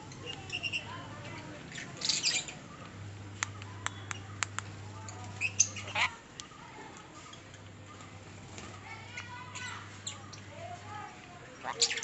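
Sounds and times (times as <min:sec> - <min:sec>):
birds chirping: 0:00.0 - 0:12.0
bird squawking: 0:05.4 - 0:06.2, 0:11.6 - 0:12.0.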